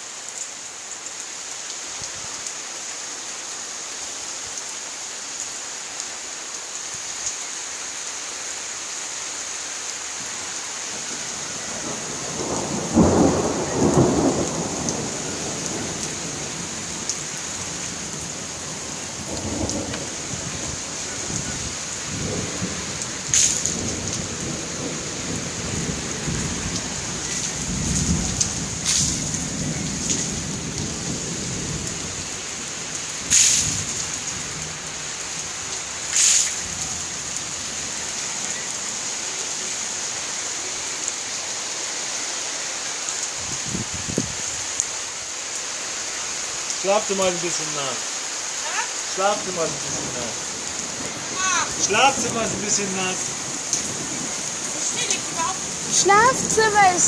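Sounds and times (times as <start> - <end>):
heavy rain pouring: 0.0 - 57.0
thunder rumbling: 10.9 - 32.4, 49.4 - 57.0
sharp thunder crack: 11.8 - 16.6, 23.3 - 24.5, 33.3 - 34.0, 51.0 - 57.0.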